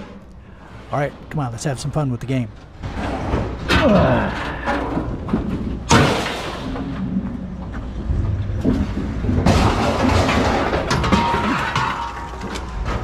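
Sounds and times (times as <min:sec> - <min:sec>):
rattling and scraping: 0:02.4 - 0:13.0
low rumble: 0:06.5 - 0:11.2.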